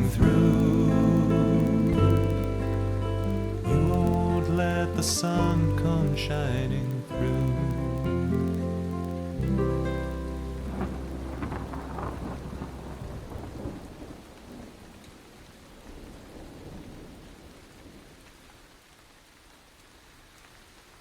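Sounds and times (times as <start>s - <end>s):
thunder rumbling: 0.0s - 15.0s
rain falling: 0.0s - 21.0s.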